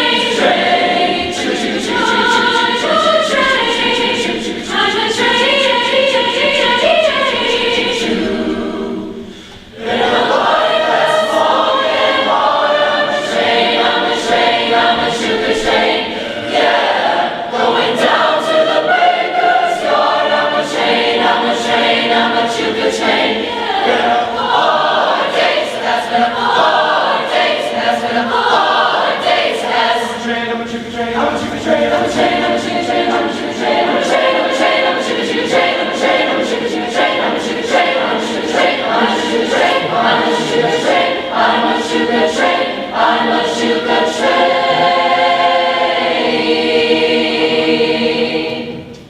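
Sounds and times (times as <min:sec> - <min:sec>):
choir singing: 0:00.0 - 0:49.0.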